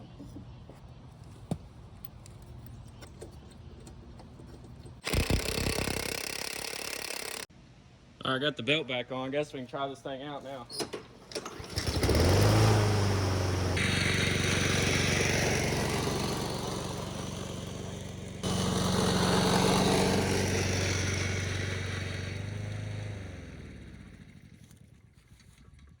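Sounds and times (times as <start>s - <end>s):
lawn mower engine running: 3.7s - 7.5s, 10.5s - 25.6s.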